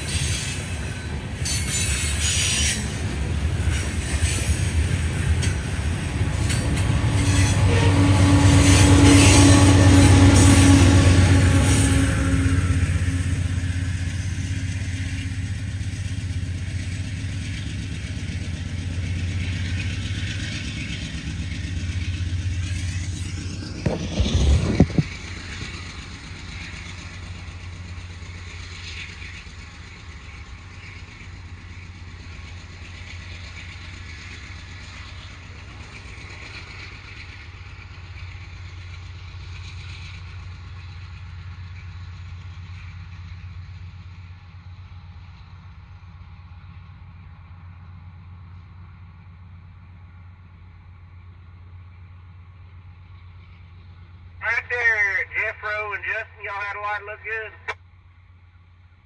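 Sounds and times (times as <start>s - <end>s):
diesel locomotive engine drone: 0.0s - 59.0s
train rumbling past: 0.0s - 59.0s
loud low rumble: 22.7s - 26.0s.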